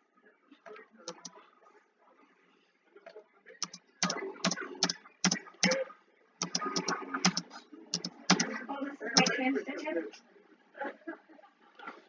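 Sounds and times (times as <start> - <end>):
keyboard keys clicking: 3.6 - 5.8, 6.4 - 8.5.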